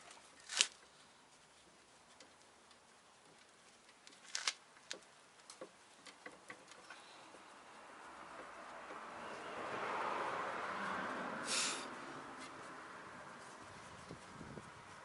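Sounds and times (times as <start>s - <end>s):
faint hiss: 11.4s - 12.0s.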